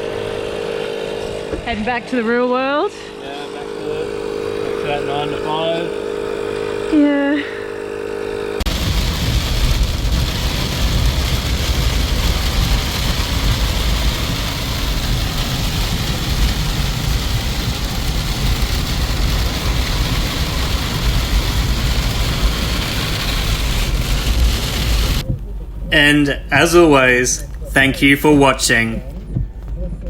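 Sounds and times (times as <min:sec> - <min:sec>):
vehicle engine and road noise: 0:00.0 - 0:30.0.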